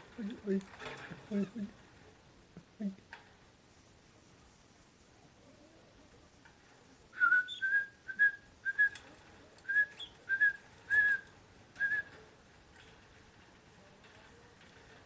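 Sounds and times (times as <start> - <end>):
short whistled notes: 7.2 - 9.0, 9.7 - 11.2.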